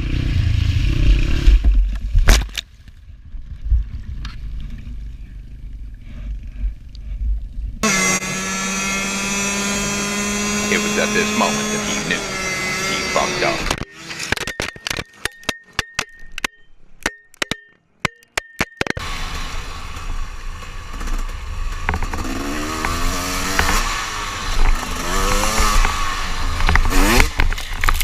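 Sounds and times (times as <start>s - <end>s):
dirt bike engine revving: 7.8s - 14.3s, 19.0s - 28.0s.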